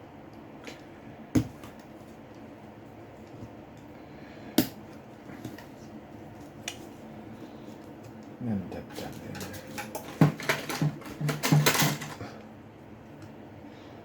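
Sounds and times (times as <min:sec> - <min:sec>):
low background hum: 0:00.0 - 0:14.0
tools and parts clicking and tapping: 0:09.0 - 0:12.2.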